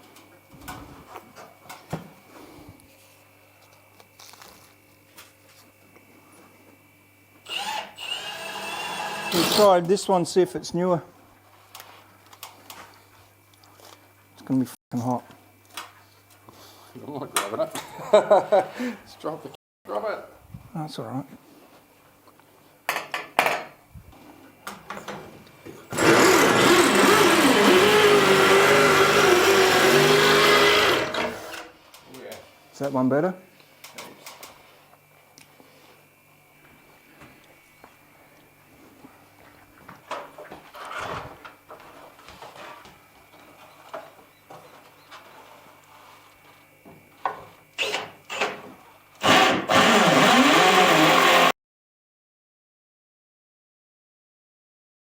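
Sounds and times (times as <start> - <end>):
electric drill running: 7.4 - 9.7, 25.9 - 31.6, 49.2 - 51.5.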